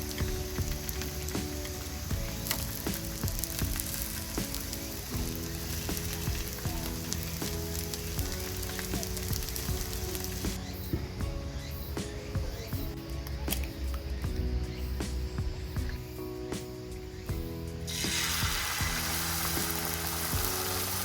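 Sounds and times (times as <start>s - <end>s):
food sizzling: 0.0s - 10.6s, 17.8s - 21.0s
background music: 0.0s - 21.0s.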